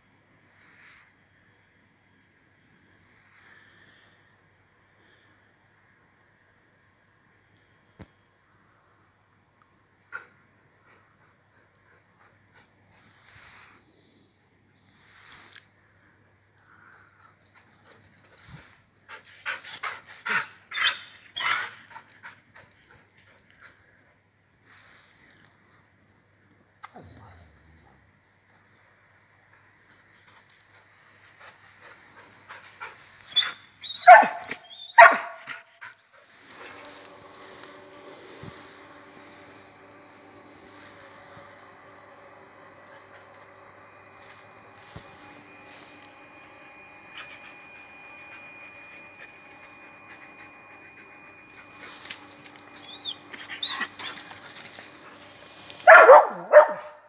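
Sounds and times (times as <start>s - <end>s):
dogs whining and yelping: 19.2s - 22.8s, 32.7s - 36.9s, 48.2s - 56.8s
dog barking: 33.4s - 35.7s, 55.8s - 57.0s.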